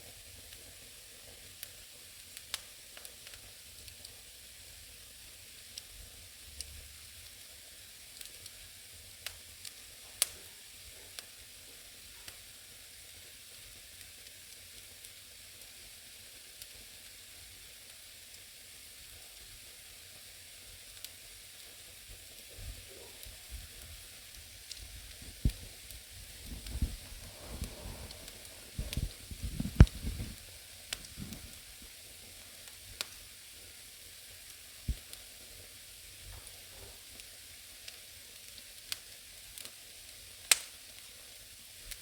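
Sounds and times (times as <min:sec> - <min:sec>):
fire hissing softly: 0:00.0 - 0:42.0
firewood crackling and popping: 0:00.4 - 0:04.2, 0:06.5 - 0:12.5, 0:16.4 - 0:17.2, 0:20.5 - 0:42.0.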